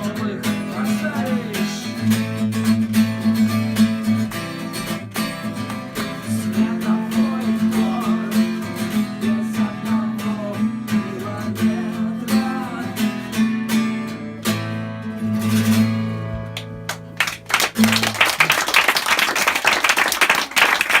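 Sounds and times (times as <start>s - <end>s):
acoustic guitar strumming: 0.0s - 18.2s
audience applauding: 16.6s - 21.0s.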